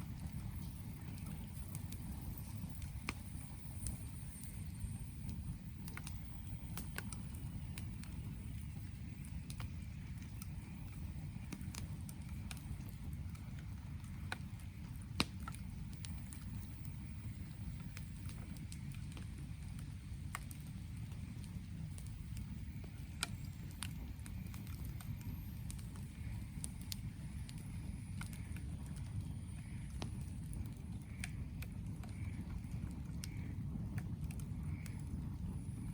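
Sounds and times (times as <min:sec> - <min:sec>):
campfire crackling: 0:00.0 - 0:35.9.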